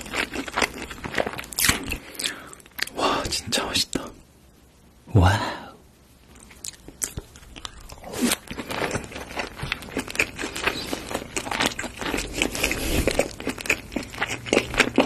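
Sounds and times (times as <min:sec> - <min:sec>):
chewing with crackling pops: 0:00.0 - 0:03.0, 0:06.3 - 0:15.0.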